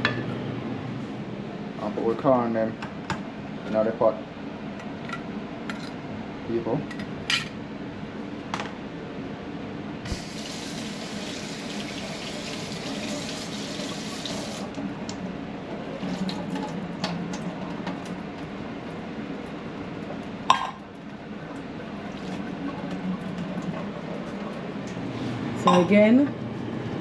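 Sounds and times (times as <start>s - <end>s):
tap running into sink: 10.1s - 14.6s.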